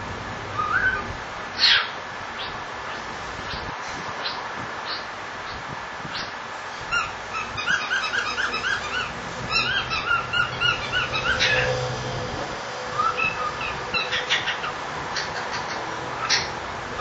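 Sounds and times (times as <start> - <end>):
cockatiel whistling a tune: 0.6 - 1.1, 13.0 - 13.7.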